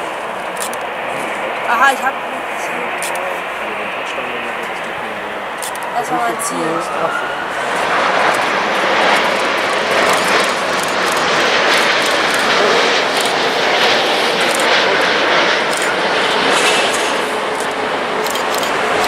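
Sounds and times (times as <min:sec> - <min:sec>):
jet airliner engines: 0:00.0 - 0:19.0.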